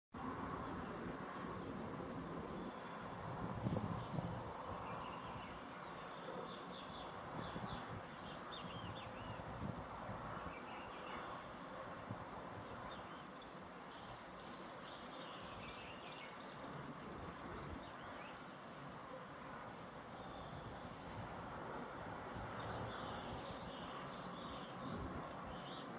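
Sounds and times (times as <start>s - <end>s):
outdoor background hiss: 0.2s - 25.9s
songbirds chirping: 0.2s - 25.9s.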